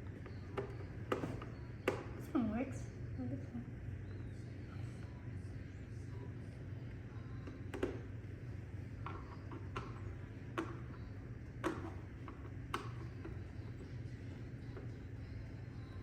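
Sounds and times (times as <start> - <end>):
steady low hum: 0.0 - 16.0
plastic clicks and taps: 7.4 - 8.1, 9.0 - 13.9.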